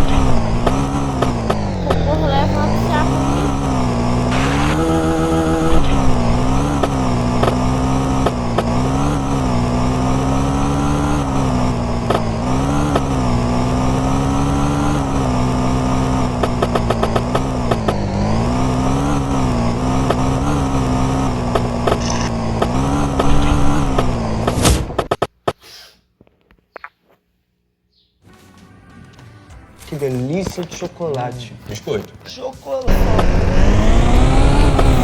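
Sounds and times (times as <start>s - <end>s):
moped engine revving: 0.0s - 25.4s, 32.9s - 35.0s.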